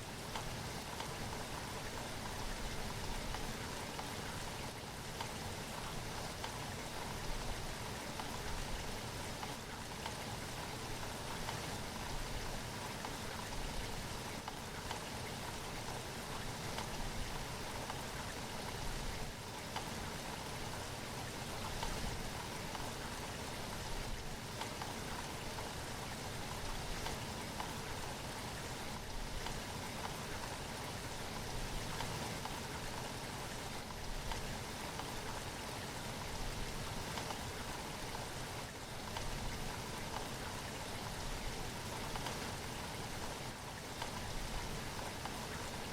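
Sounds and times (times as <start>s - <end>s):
steady rain falling: 0.0s - 45.9s.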